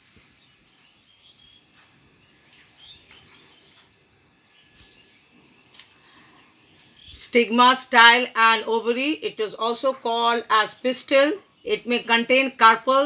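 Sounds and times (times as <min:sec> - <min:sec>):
small bird chirping: 0:00.1 - 0:07.5.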